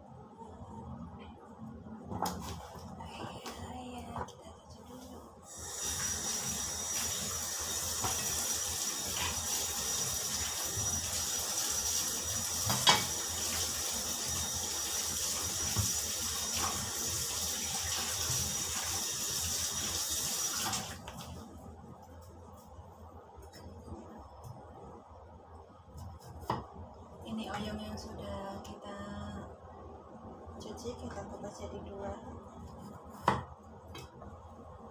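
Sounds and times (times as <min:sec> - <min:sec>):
tap water running into sink: 0:05.6 - 0:21.2.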